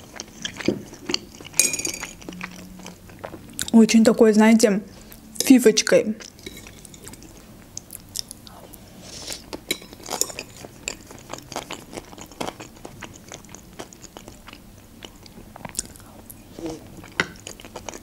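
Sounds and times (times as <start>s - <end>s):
close chewing with mouth clicks: 0.0s - 3.8s, 9.2s - 18.0s.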